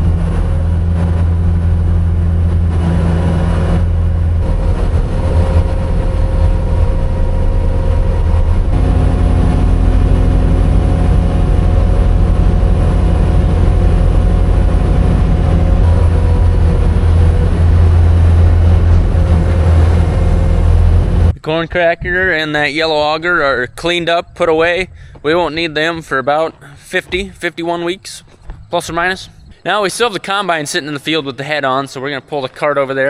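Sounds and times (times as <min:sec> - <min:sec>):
heavy engine humming: 0:00.0 - 0:22.8, 0:23.4 - 0:31.4.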